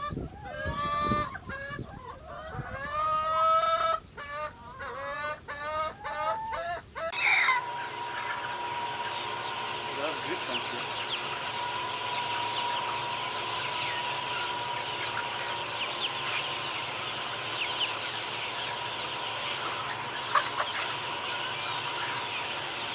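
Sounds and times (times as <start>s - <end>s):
chickens clucking: 0.0s - 22.9s
high chirps: 7.1s - 22.9s.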